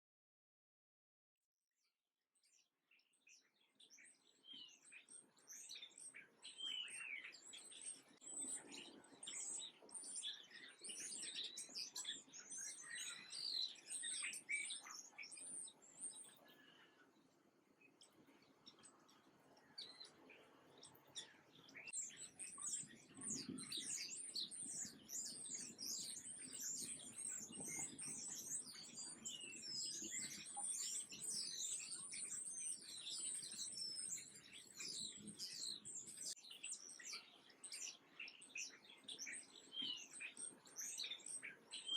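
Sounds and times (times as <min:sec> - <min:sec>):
small birds chirping: 0:02.4 - 0:41.9.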